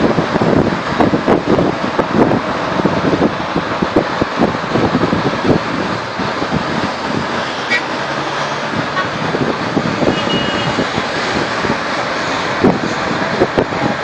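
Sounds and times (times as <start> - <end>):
passing road traffic: 0.0 - 14.0
sea surf rushing: 0.0 - 14.0
wind buffeting microphone: 0.0 - 14.0
faint car horn toot: 10.1 - 10.8.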